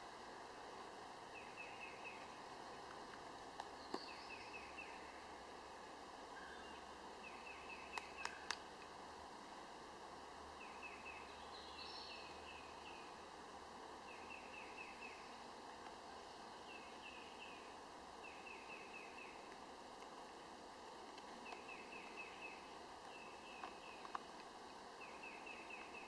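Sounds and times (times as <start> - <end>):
bird chirping: 1.3 - 2.4, 3.8 - 5.2, 6.4 - 8.6, 10.6 - 13.2, 14.1 - 15.4, 16.5 - 19.5, 21.4 - 24.2, 25.0 - 26.0
sharp clicks: 7.9 - 8.6.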